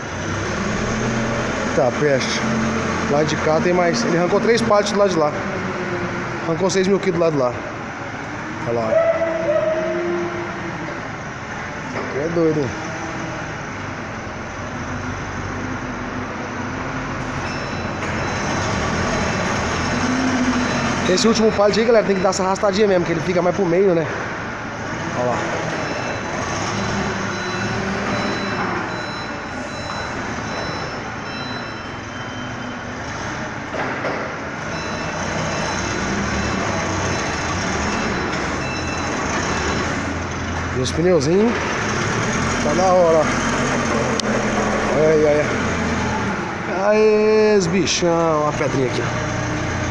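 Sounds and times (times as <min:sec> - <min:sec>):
forklift engine running: 0:00.0 - 0:49.9
reversing beeper: 0:17.2 - 0:23.4, 0:25.2 - 0:33.3, 0:34.6 - 0:40.1.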